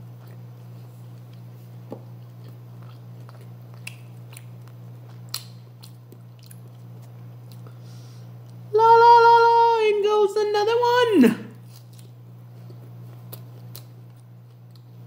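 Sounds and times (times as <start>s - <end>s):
person chewing meat: 0.0s - 8.6s, 11.6s - 15.0s
steady low hum: 0.0s - 15.0s
wet mouth clicks and smacks: 2.9s - 4.5s.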